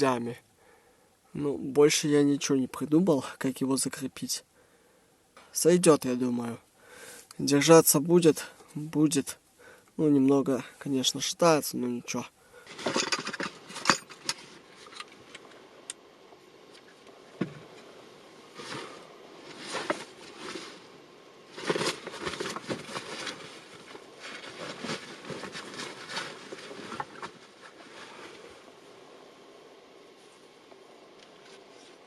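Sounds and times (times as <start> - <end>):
rustling and scraping: 12.1 - 15.8, 16.6 - 28.9, 30.1 - 32.0.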